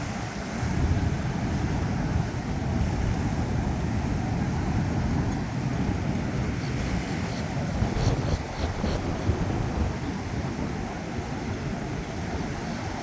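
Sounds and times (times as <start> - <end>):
ocean surf: 0.0 - 13.0
wind rumbling on microphone: 0.0 - 13.0.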